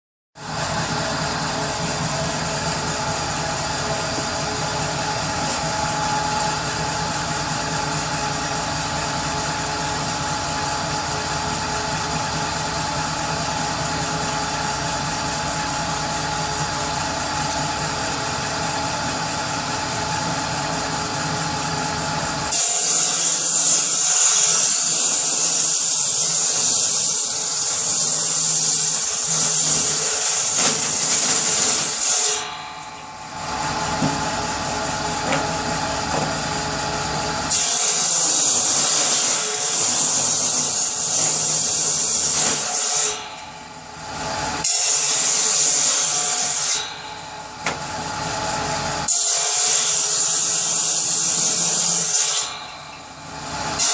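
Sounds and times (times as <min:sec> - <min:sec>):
power saw running: 0:00.4 - 0:53.9
saw cutting into wood: 0:22.5 - 0:36.4, 0:37.5 - 0:43.5, 0:44.6 - 0:47.0, 0:49.0 - 0:52.8, 0:53.7 - 0:53.9.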